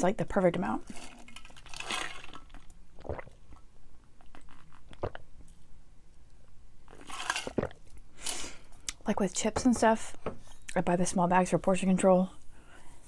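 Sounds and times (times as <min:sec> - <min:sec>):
crunchy chewing: 0:06.9 - 0:08.0.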